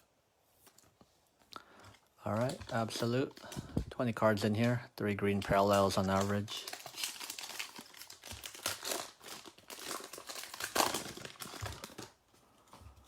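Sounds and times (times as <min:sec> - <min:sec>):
foil wrapper tearing and crinkling: 0:05.2 - 0:12.2.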